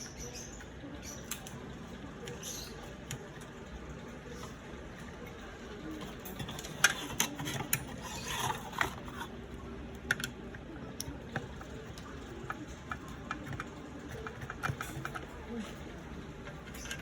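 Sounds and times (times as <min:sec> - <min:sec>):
tools and parts clicking: 0:06.0 - 0:09.3, 0:10.0 - 0:11.7, 0:16.5 - 0:17.0.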